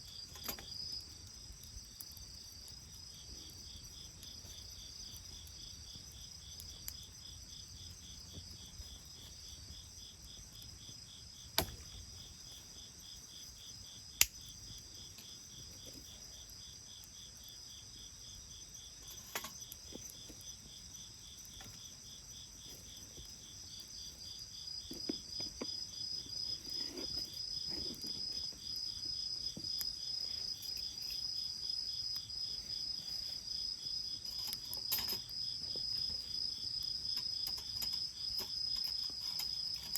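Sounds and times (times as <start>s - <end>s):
bonfire snaps: 0.0s - 18.0s
insects trilling: 0.0s - 39.9s.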